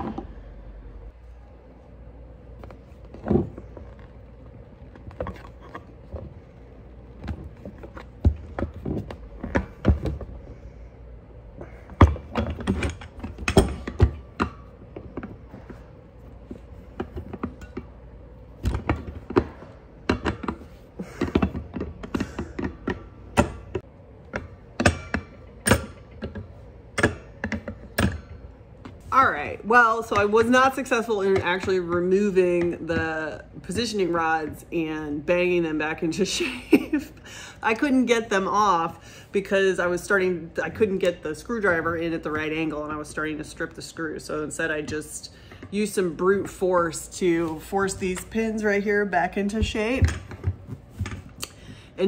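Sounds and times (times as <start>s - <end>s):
tools clicking and clanking: 11.9s - 15.8s.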